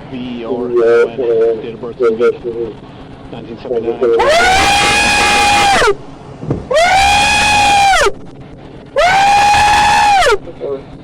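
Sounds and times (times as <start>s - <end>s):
man screaming and wailing: 4.2s - 6.0s, 6.7s - 8.1s, 9.0s - 10.4s.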